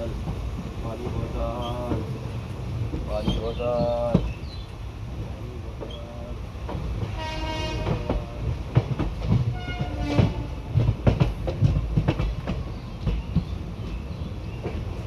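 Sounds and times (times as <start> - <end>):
train wheels rolling on track: 0.0 - 15.0
wheels clanking over rail joints: 0.0 - 15.0
train horn blasts: 7.0 - 8.5, 9.5 - 10.8.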